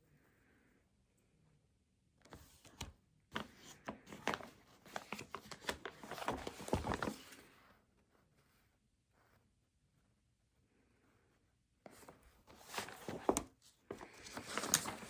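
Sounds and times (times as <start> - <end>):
rustles and clicks on a desk: 11.9 - 15.0.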